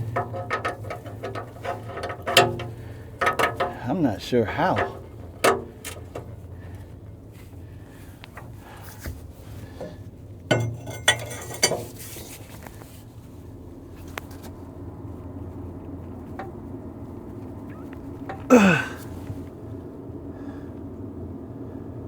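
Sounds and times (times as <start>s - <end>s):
metallic clanks of wrench: 0.0s - 3.9s, 4.7s - 6.3s, 10.5s - 12.1s
steady low hum: 0.0s - 22.0s.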